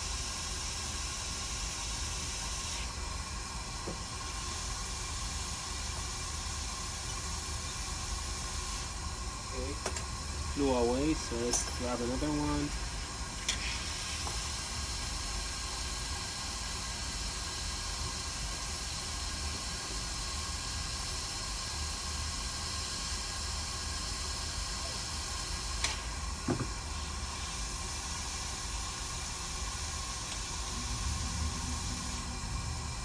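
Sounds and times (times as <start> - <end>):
hiss of blowing air: 0.0 - 33.0.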